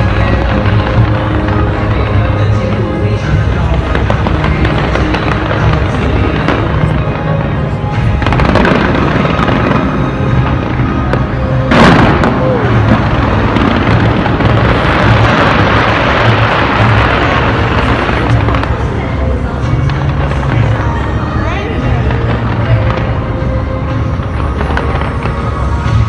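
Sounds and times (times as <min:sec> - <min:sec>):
fireworks bursting and crackling: 0:00.0 - 0:26.0
music: 0:00.0 - 0:26.0
loud firework boom: 0:08.0 - 0:18.7.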